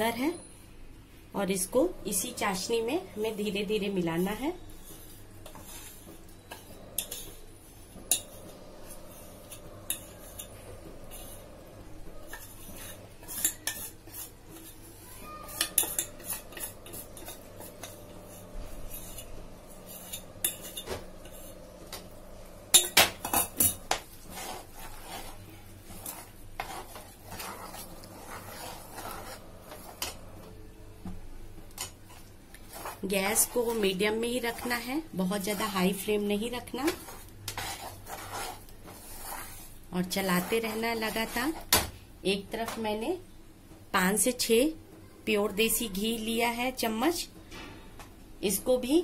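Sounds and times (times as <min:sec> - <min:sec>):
ladle clinking and scraping metal pot: 0:04.7 - 0:30.4.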